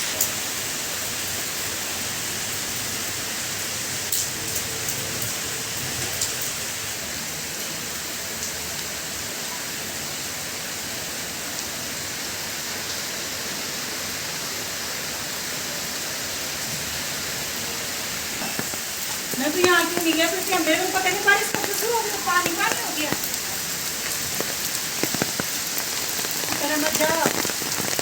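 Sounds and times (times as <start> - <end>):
steady rain hiss: 0.0 - 28.0
sharp drips: 18.1 - 28.0.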